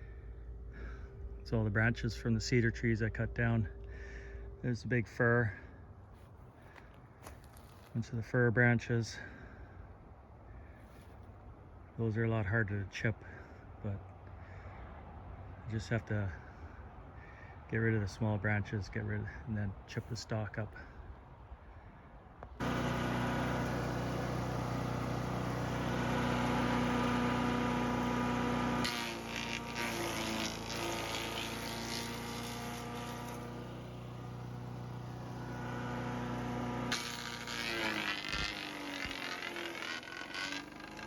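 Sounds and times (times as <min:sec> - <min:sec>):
wood chipper engine running: 0:22.6 - 0:41.0.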